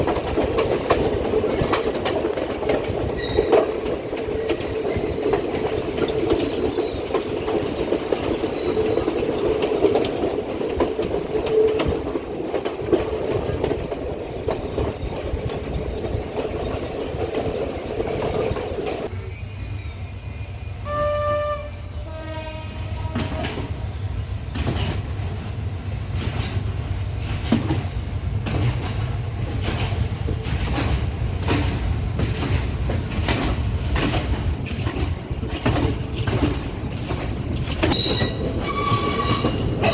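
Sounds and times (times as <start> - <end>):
wheels clacking over rail joints: 0.0 - 19.1, 23.0 - 39.9
train rumbling on rails: 0.0 - 39.9
locomotive horn blasts: 20.8 - 23.7.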